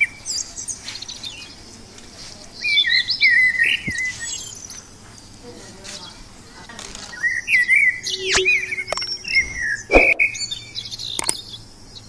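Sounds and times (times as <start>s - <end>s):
parakeet chirping: 7.4s - 11.2s
sharp clicks: 11.1s - 11.4s.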